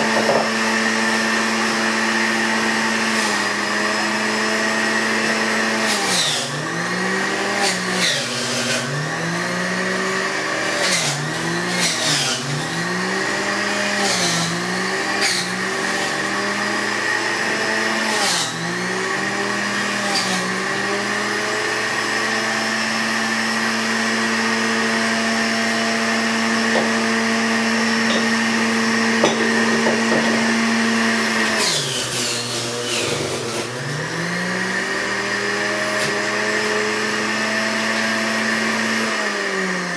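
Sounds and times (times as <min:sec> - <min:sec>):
electric motor appliance running: 0:00.0 - 0:39.9.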